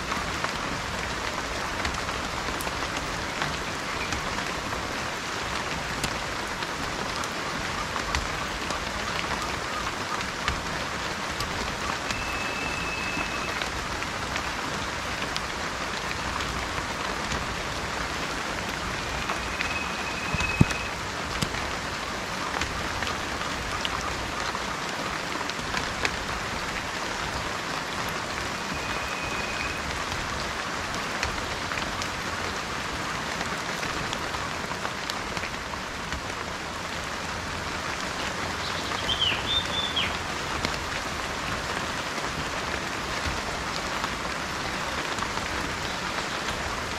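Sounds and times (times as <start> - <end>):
rain pattering on a surface: 0.0 - 46.9
bird whistling and chirping: 12.1 - 13.6, 19.0 - 20.9, 28.6 - 29.8, 38.7 - 40.1.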